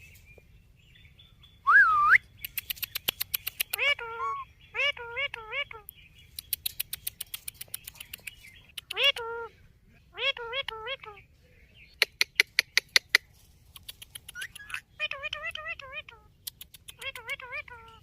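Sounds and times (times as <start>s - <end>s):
parrot whistling: 1.7s - 2.2s, 4.2s - 4.4s
parrot rapid clicks: 2.4s - 4.0s, 6.4s - 9.1s, 13.8s - 14.8s, 16.4s - 17.4s.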